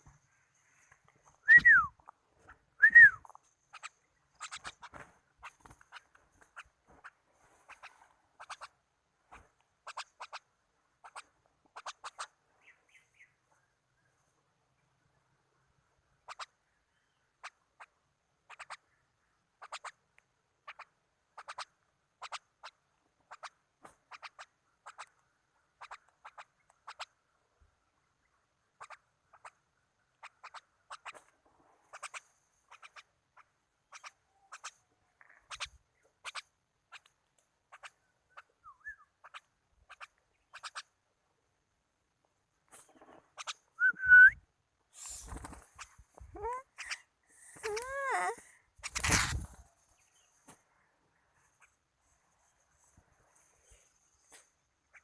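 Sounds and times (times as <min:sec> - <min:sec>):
bird chirping: 0:00.0 - 0:15.3, 0:16.1 - 0:20.0, 0:20.6 - 0:27.2, 0:27.8 - 0:41.0, 0:42.9 - 0:55.0
rising whistled bird call: 0:01.4 - 0:02.0, 0:02.8 - 0:03.2, 0:38.6 - 0:39.1, 0:43.8 - 0:44.4.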